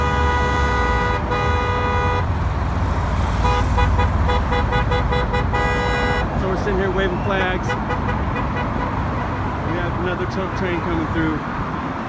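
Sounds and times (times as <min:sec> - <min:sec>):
vehicle horn honking: 0:00.0 - 0:02.3, 0:03.4 - 0:09.6
engine and traffic rumble: 0:00.0 - 0:12.0.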